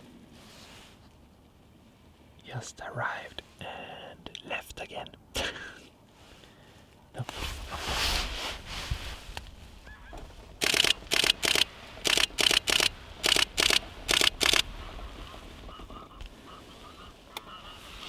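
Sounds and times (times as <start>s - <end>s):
geese honking: 15.2s - 18.0s.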